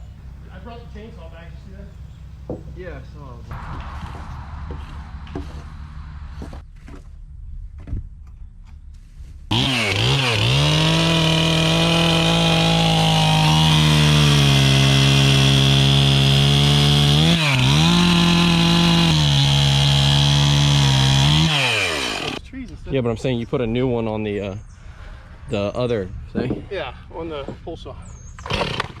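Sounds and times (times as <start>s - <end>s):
chainsaw revving: 9.5s - 22.4s, 28.4s - 29.0s.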